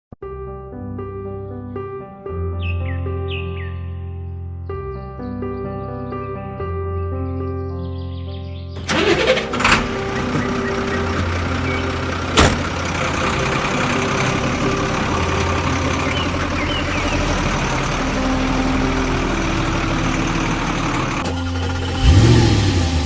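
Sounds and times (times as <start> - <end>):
truck engine idling: 8.8 - 23.0.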